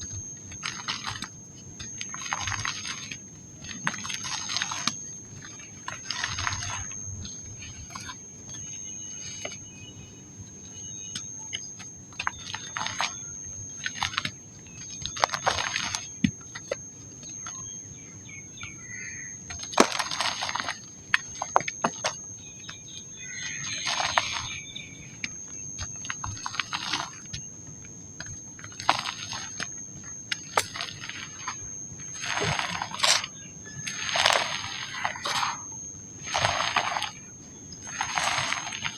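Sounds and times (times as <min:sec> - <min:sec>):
dry mud crunching: 0:00.0 - 0:10.0, 0:18.6 - 0:27.4, 0:28.2 - 0:38.9
thin high whine: 0:00.0 - 0:38.9.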